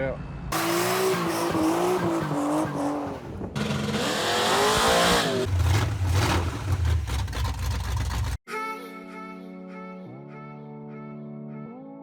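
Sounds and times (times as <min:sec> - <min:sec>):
car engine rumbling: 0:00.6 - 0:08.4
tires squealing: 0:00.6 - 0:08.4.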